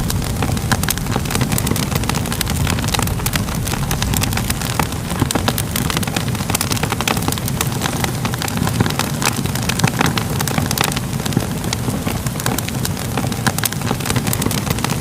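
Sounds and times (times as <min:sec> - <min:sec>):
fire popping and crackling: 0:00.0 - 0:15.0
fire rumbling: 0:00.0 - 0:15.0.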